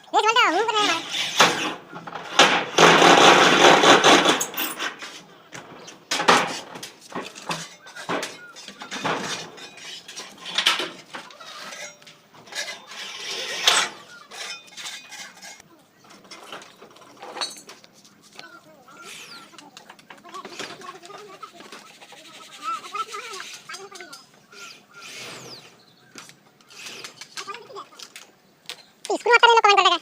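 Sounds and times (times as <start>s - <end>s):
metal sheets rattling and scraping: 0.2s - 28.2s
metallic clanks and knocks: 1.3s - 13.0s, 13.6s - 18.0s.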